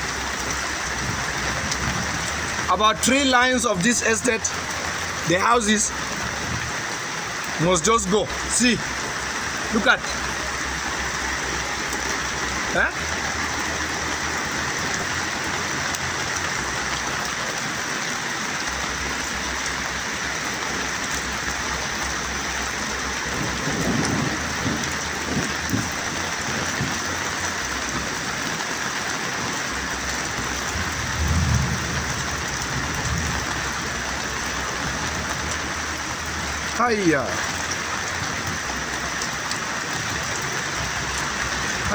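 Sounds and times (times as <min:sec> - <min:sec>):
low rumbles: 0:00.0 - 0:17.7, 0:18.5 - 0:39.3
heavy rain: 0:00.0 - 0:41.9.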